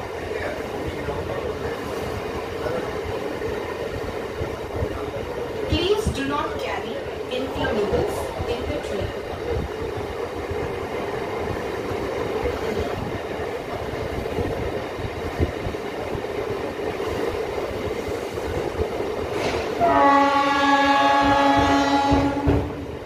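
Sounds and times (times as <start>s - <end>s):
train carriage rumbling and rattling: 0.0s - 23.0s.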